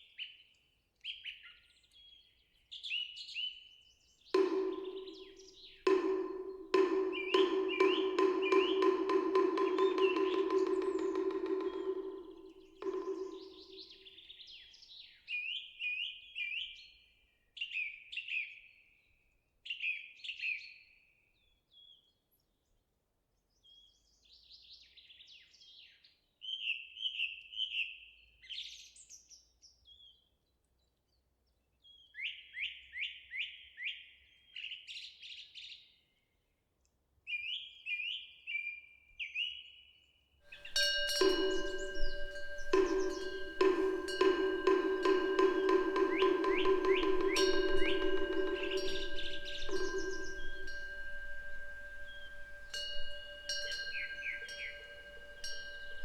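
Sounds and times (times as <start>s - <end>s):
bell ringing low: 4.4s - 13.8s, 40.5s - 56.0s
songbird chirping: 4.4s - 14.1s, 40.5s - 56.0s.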